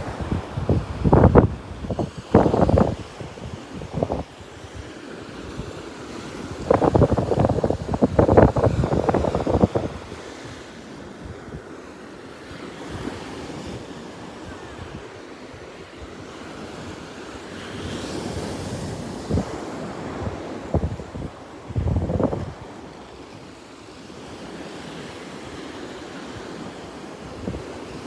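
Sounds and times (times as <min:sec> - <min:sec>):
wind buffeting microphone: 0:00.0 - 0:10.6, 0:18.2 - 0:22.9
ocean surf washing: 0:00.0 - 0:28.0.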